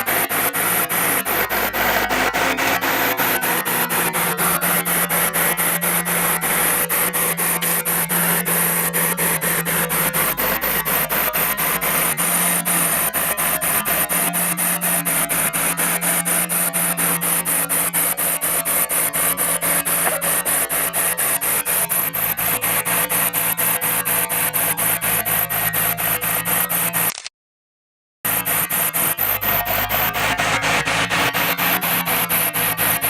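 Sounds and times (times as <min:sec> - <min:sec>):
low engine hum: 0:00.0 - 0:23.4
pulsing machine scraping: 0:00.0 - 0:27.2, 0:28.3 - 0:33.0.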